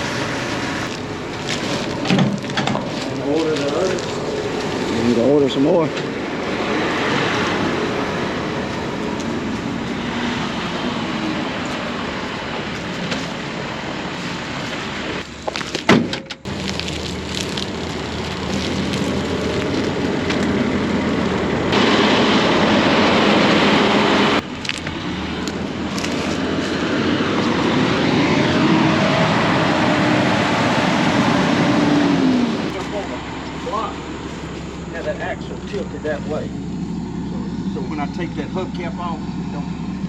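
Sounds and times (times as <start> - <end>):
farm machine engine running: 16.5 - 40.0.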